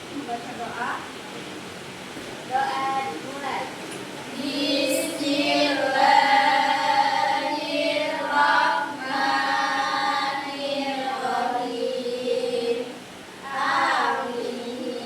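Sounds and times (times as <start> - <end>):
voices chanting a prayer in unison: 4.3 - 15.0.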